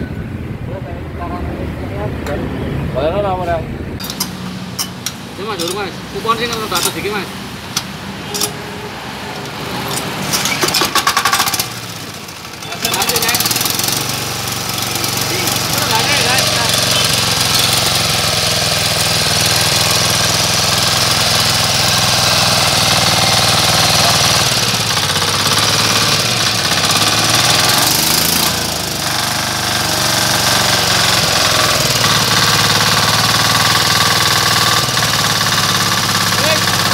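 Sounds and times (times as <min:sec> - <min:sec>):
diesel engine knocking: 0:10.8 - 0:36.9.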